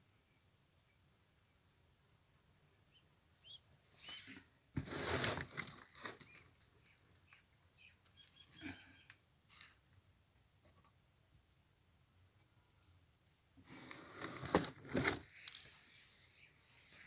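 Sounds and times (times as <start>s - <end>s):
soft rustling and clicks: 5.2s - 8.5s.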